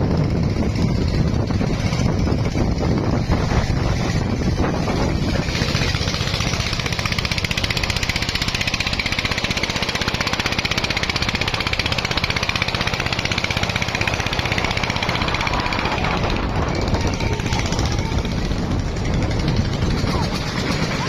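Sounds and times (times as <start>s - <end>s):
diesel engine chugging: 0.0s - 21.0s.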